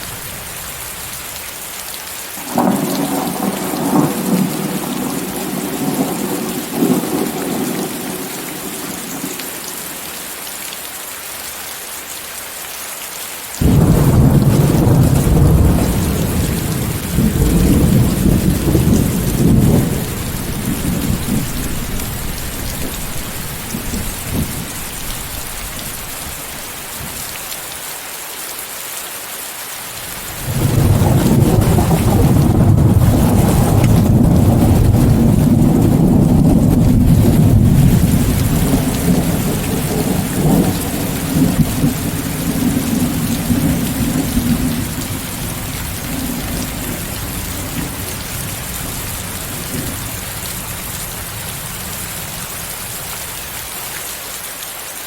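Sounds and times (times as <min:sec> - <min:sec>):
steady rain: 0:00.0 - 0:55.0
rolling thunder: 0:02.4 - 0:09.6, 0:13.6 - 0:27.3, 0:30.3 - 0:53.1.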